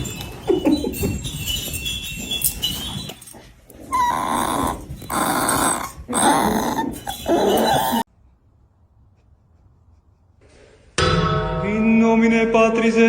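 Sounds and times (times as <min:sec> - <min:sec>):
dog growling: 0:03.7 - 0:08.1.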